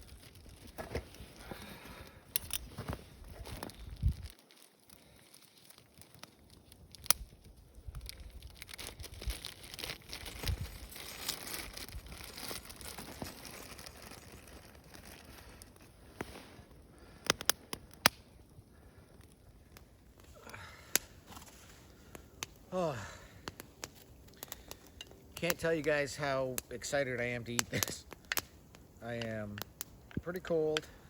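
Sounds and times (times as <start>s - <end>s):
plastic packaging tearing and crinkling: 0.0s - 1.2s, 3.4s - 15.9s.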